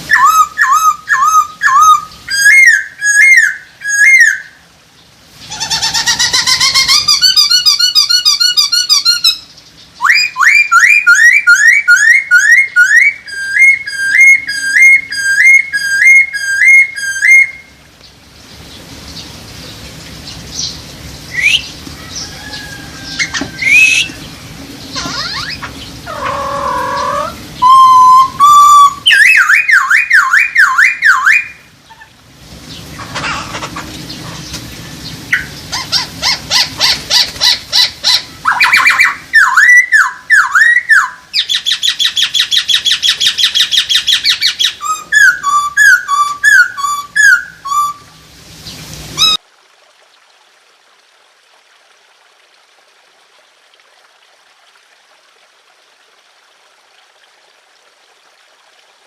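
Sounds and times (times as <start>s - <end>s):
bird calls: 0.1s - 4.6s, 5.4s - 49.4s
bird whistled song: 0.1s - 4.6s, 5.6s - 17.8s, 20.5s - 22.2s, 23.1s - 24.2s, 25.0s - 32.0s, 37.8s - 48.1s.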